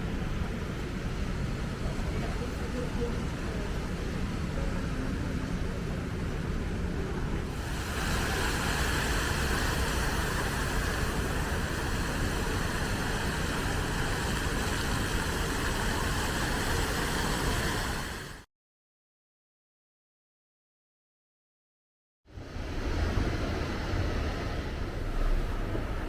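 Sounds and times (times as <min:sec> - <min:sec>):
road traffic noise: 0:00.0 - 0:18.4.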